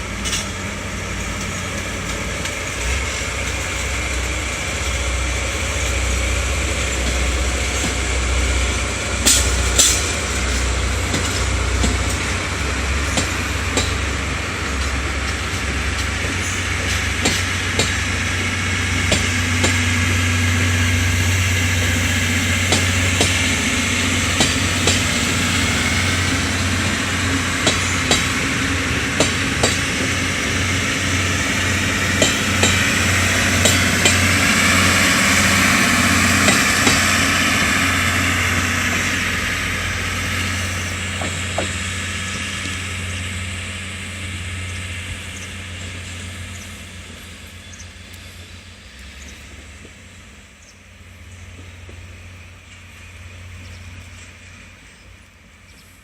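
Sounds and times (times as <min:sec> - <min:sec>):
wheels clacking over rail joints: 0:00.0 - 0:20.7, 0:21.3 - 0:43.5
diesel train engine drone: 0:00.0 - 0:56.0.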